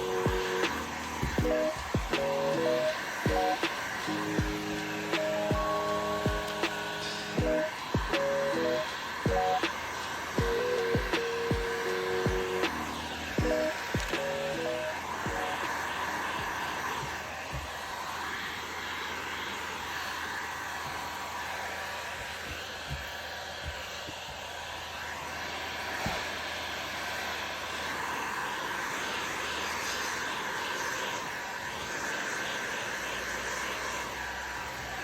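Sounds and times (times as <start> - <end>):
heat gun blowing with whine: 0.0 - 35.0.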